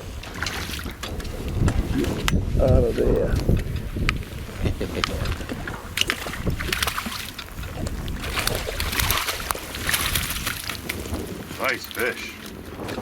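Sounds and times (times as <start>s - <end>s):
wind rumbling on microphone: 0.0s - 13.0s
fish splashing in water: 5.2s - 11.5s.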